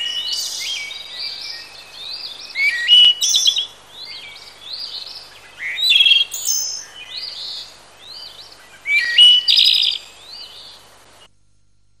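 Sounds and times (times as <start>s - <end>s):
songbirds singing and chirping: 0.0s - 11.3s.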